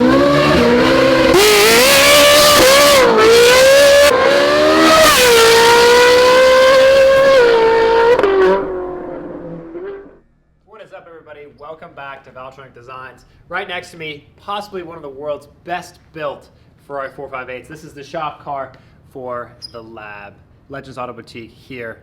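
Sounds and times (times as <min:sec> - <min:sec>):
car engine revving loud: 0:00.0 - 0:10.2.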